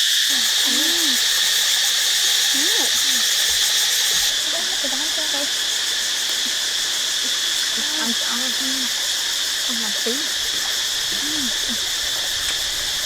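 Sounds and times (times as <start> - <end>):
insects buzzing: 0.0 - 13.0
faint voices: 0.3 - 1.3, 6.3 - 12.6.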